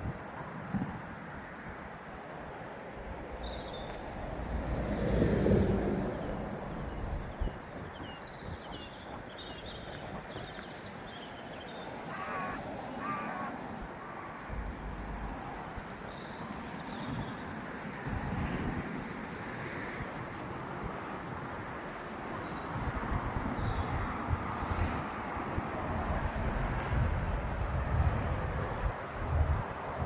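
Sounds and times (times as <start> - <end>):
small birds chirping: 6.0 - 25.3
crow cawing: 11.8 - 15.2.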